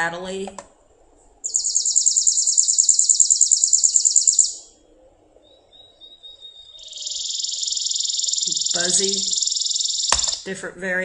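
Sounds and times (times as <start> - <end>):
sparrow singing dry trill: 1.4 - 4.8, 5.4 - 10.5.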